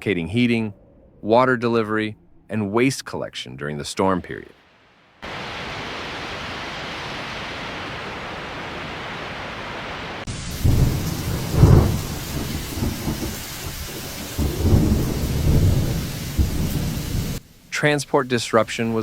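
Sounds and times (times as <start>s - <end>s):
steady hiss: 4.0s - 19.0s
wind buffeting microphone: 10.5s - 17.4s.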